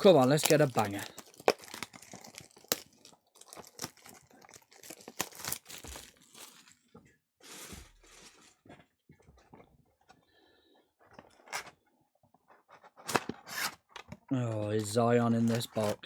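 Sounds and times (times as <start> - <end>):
wrapper tearing and crinkling: 0.0 - 6.8, 14.8 - 16.0.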